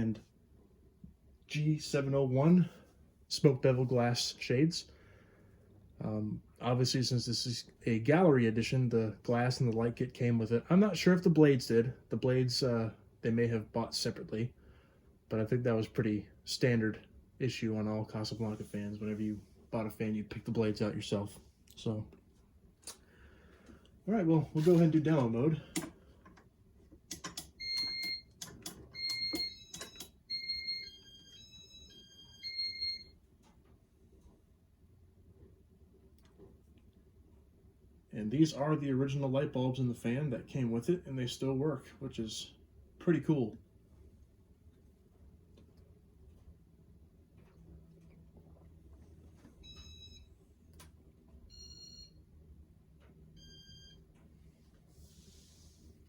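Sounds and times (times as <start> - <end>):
low steady hum: 0.0 - 56.0
faint electronic beeps: 53.4 - 54.0.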